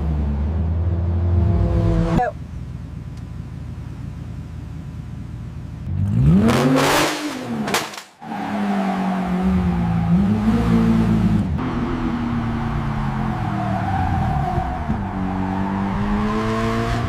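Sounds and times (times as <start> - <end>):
race car engine revving: 5.9 - 7.8, 8.4 - 17.0.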